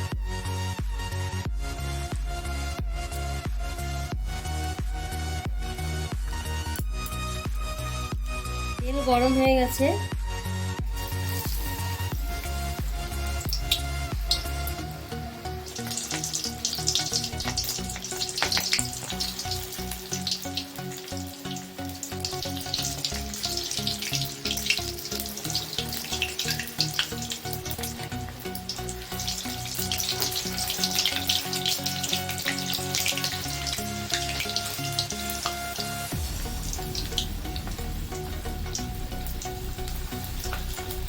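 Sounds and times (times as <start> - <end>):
chicken frying in hot oil: 10.8 - 41.0.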